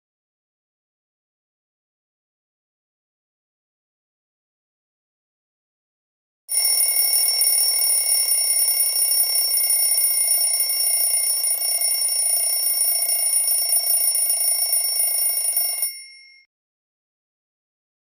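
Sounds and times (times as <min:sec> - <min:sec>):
bell ringing: 0:06.5 - 0:16.5.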